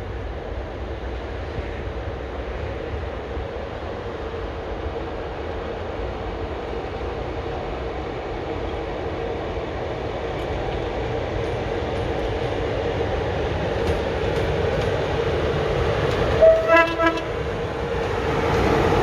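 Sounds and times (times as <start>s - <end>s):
train rumbling: 0.0s - 19.0s
train horn toots: 16.4s - 17.4s.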